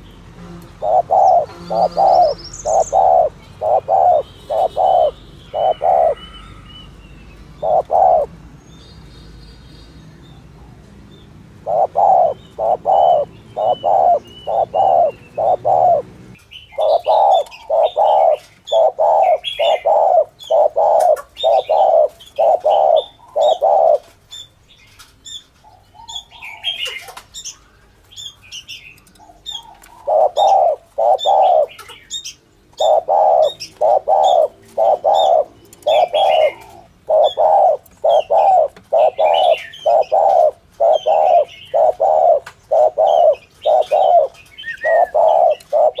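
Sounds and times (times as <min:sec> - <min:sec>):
dove cooing: 0:00.0 - 0:06.9, 0:07.6 - 0:08.3, 0:11.6 - 0:24.1, 0:25.7 - 0:27.2, 0:29.2 - 0:32.1, 0:32.7 - 0:46.0
small birds chirping: 0:00.0 - 0:46.0.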